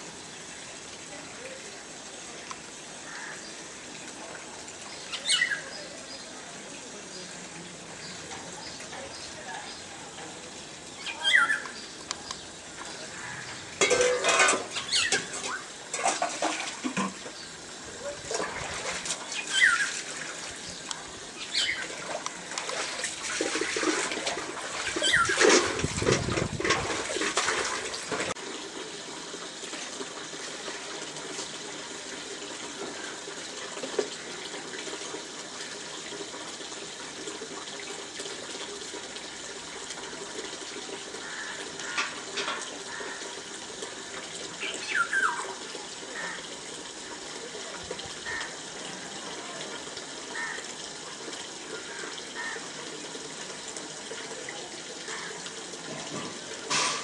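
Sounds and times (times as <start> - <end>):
songbirds chirping: 2.4 - 13.8, 19.2 - 22.0.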